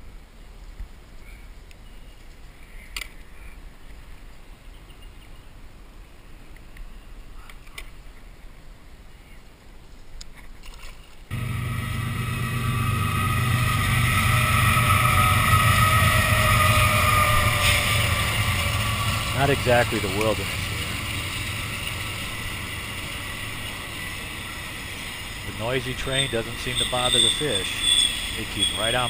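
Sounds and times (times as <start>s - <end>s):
low hum: 11.3s - 26.9s
freight train rumbling: 11.3s - 29.0s.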